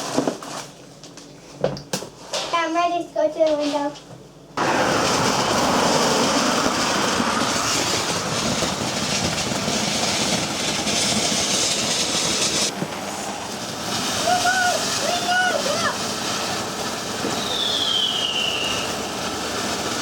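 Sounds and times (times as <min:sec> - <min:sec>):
firework fountain hissing: 0:04.6 - 0:20.0.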